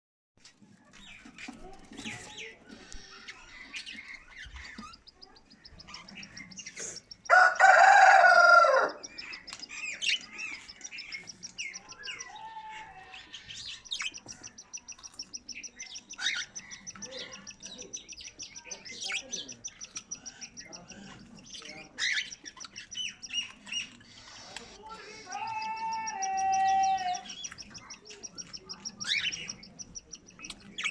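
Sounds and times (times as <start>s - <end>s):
chicks cheeping: 0.6s - 30.9s
budgerigars chirping: 1.0s - 30.9s
rooster crowing: 7.3s - 9.0s.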